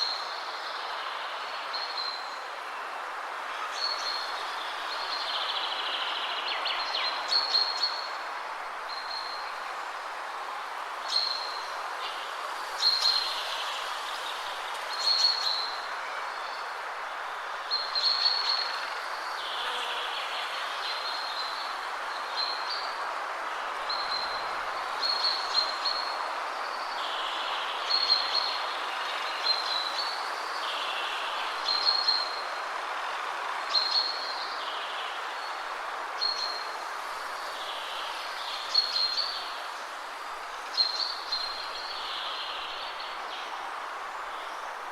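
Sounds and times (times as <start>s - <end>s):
wind rushing through trees: 0.0s - 44.9s.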